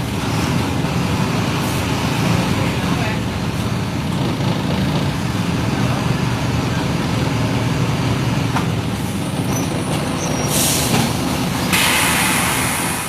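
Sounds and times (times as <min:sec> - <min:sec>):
bus diesel engine running: 0:00.0 - 0:13.0
compressed air hiss: 0:10.5 - 0:11.0, 0:11.7 - 0:13.0.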